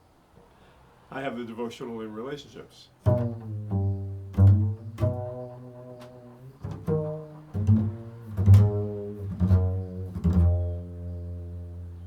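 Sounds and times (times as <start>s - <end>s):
low plucked string notes: 3.0s - 12.0s.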